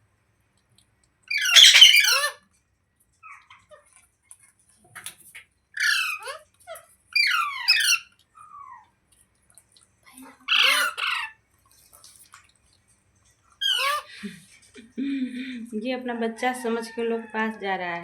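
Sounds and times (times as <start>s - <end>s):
parrot screeching squawks: 1.3s - 2.4s, 5.8s - 6.4s, 7.2s - 8.1s, 10.5s - 11.4s, 13.6s - 14.1s.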